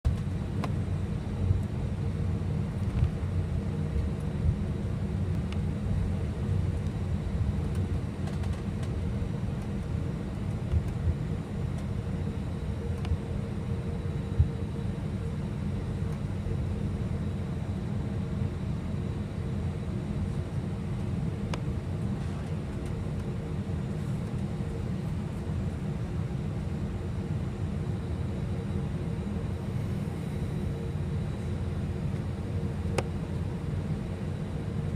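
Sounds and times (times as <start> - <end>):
airliner cabin rumble: 0.0 - 34.9.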